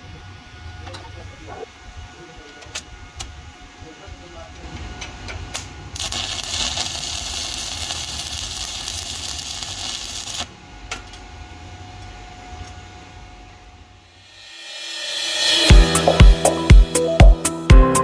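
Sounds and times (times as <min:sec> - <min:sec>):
welding arc crackling and hissing: 0:04.7 - 0:10.6.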